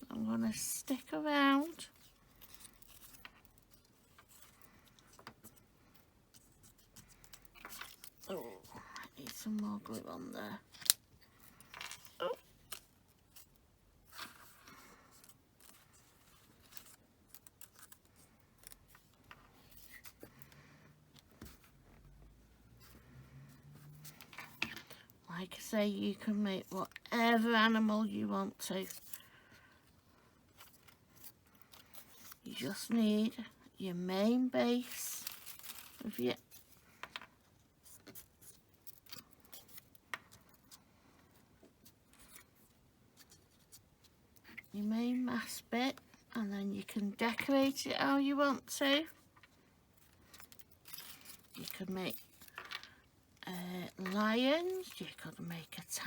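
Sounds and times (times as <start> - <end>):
paper rustling: 34.6 - 37.0.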